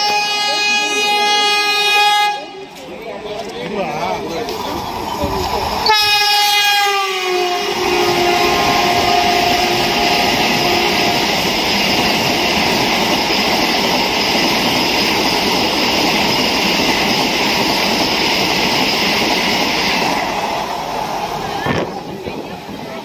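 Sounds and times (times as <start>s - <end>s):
train horn: 0.0s - 2.6s, 5.8s - 11.6s, 12.2s - 13.0s
electric train passing at speed: 0.0s - 23.0s.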